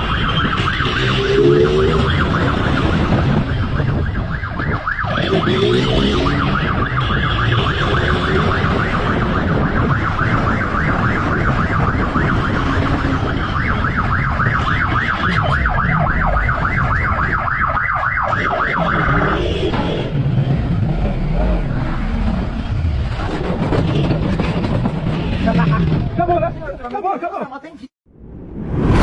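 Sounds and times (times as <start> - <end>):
wind noise: 0.0 - 18.6
police siren yelping: 0.0 - 19.8.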